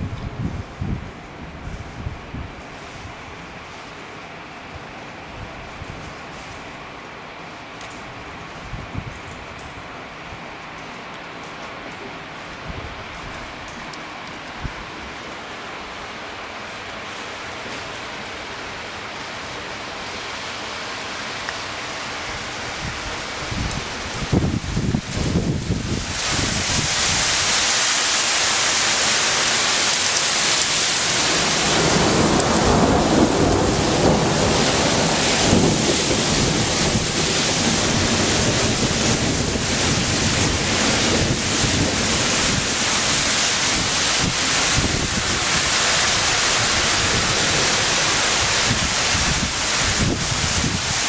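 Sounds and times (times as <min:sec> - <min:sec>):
heavy hail pelting: 0:20.8 - 0:51.0
low thunder rumble: 0:31.0 - 0:51.0.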